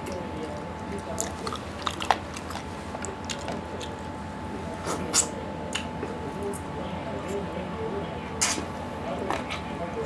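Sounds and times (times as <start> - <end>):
chewing food: 0.0 - 4.3.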